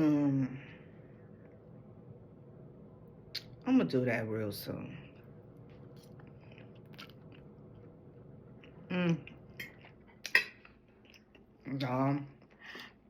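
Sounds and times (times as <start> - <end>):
person chewing food: 5.6 - 11.6.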